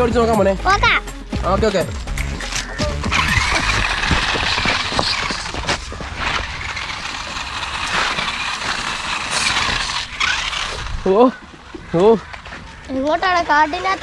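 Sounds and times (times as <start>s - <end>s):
toy truck electric motor whine: 2.4s - 11.2s.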